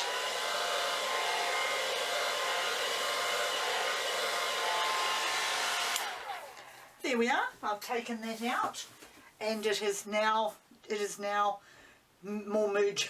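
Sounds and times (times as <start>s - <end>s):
blow dryer running: 0.0s - 7.0s.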